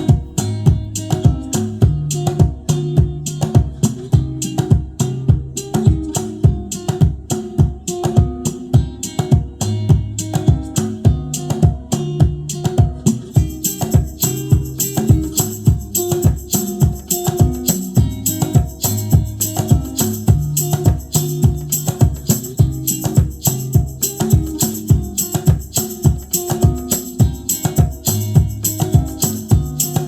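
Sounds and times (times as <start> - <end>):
music with guitar bass and drums: 0.0 - 30.0
tambourine-like shimmer: 13.4 - 30.0.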